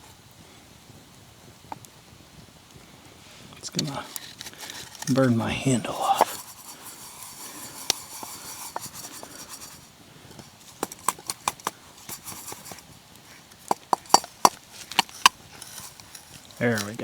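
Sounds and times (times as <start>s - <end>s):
faint hiss: 0.0s - 17.0s
sharp clicks and light knocks: 6.1s - 17.0s.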